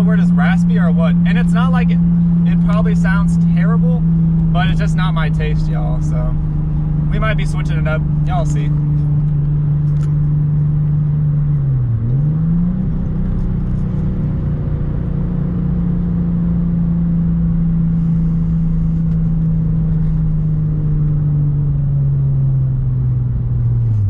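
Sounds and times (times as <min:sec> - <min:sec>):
raspy car engine: 0:00.0 - 0:24.0.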